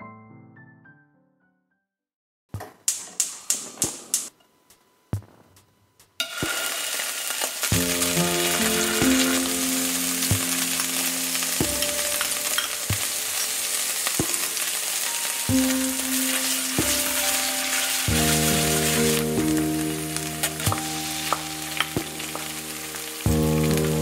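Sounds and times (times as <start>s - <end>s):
soft background music: 4.3s - 24.0s
oil sizzling in frying pan: 6.2s - 24.0s.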